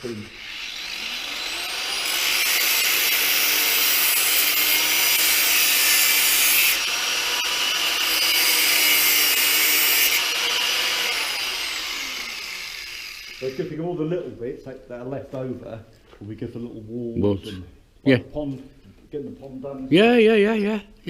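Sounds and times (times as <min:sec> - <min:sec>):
power tool motor whining: 0:00.0 - 0:13.7.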